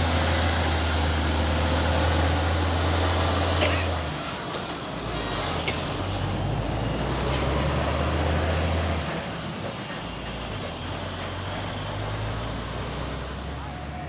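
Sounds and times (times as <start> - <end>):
diesel truck engine droning: 0.0 - 14.0.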